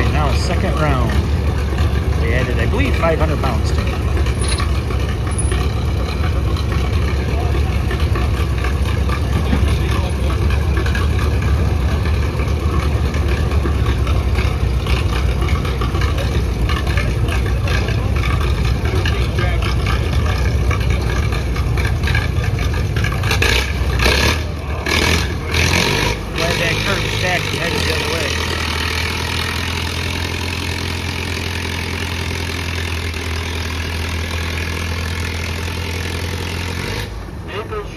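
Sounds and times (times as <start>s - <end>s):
tractor engine running under load: 0.0s - 37.9s.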